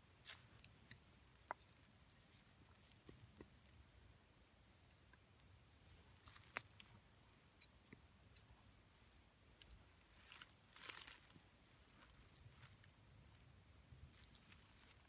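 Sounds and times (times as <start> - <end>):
twigs crackling: 0.0 - 3.7, 6.2 - 8.5, 9.4 - 15.0.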